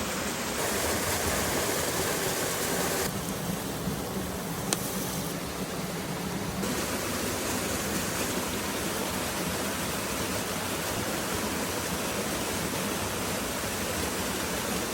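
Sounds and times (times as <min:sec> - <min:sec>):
waterfall rushing: 0:00.5 - 0:03.1.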